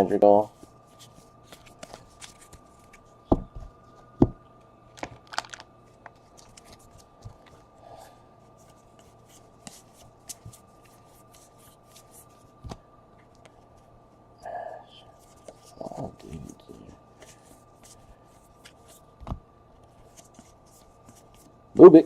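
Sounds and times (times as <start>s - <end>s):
faint steady hum: 0.0s - 22.0s
trading cards clicking and rustling: 1.0s - 3.1s, 4.9s - 7.6s.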